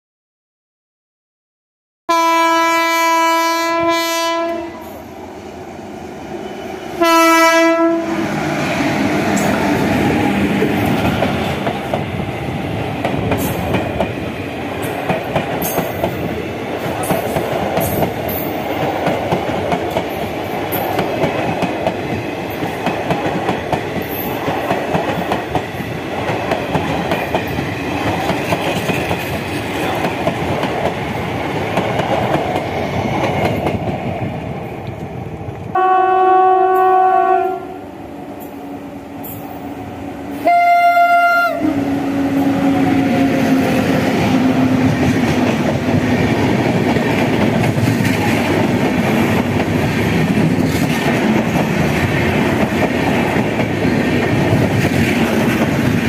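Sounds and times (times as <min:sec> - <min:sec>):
locomotive horn: 0:02.1 - 0:05.0, 0:06.5 - 0:08.3, 0:35.7 - 0:37.9, 0:40.3 - 0:43.7
approaching train rumble: 0:02.9 - 0:56.0
train wheels clattering: 0:13.0 - 0:34.1.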